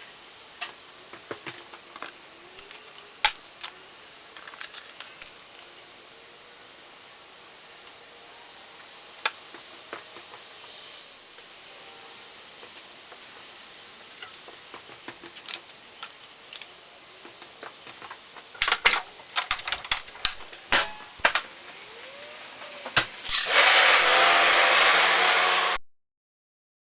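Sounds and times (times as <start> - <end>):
loud steady hissing rush: 0.0 - 25.8
tools and metal parts clattering: 4.4 - 5.4, 18.5 - 22.1.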